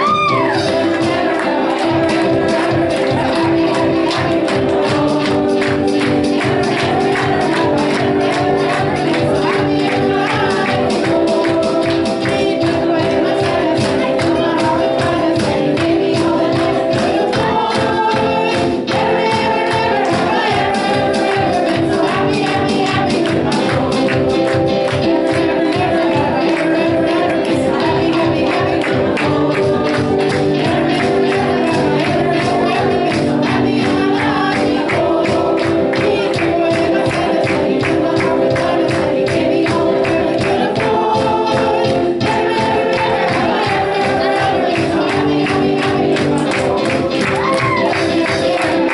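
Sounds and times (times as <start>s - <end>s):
gospel worship music: 0.0s - 48.9s.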